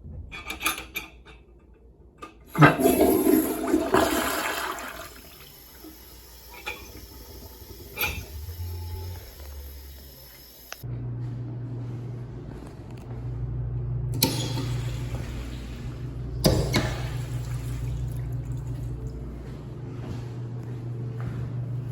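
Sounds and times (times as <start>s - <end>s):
toilet flushing water rush: 2.5s - 10.8s, 14.2s - 19.0s
toilet handle clicks: 16.4s - 17.0s.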